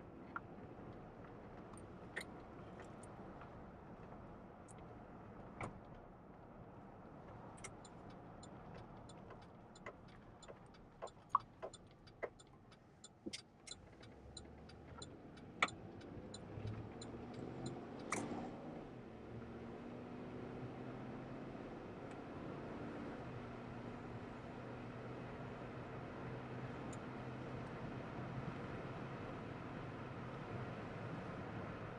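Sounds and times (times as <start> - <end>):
turn signal ticking: 7.6 - 18.4
car engine: 7.6 - 31.9.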